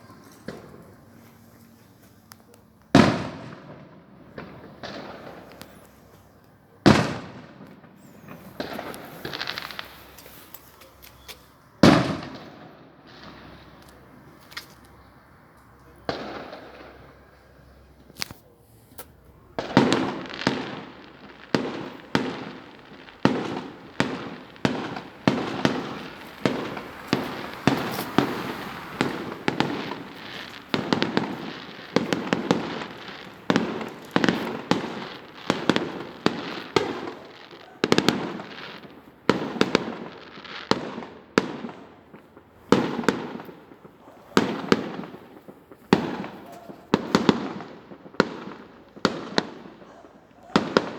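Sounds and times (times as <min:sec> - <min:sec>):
fireworks shells bursting: 0:00.0 - 0:49.8
small firework pops: 0:00.0 - 0:50.9.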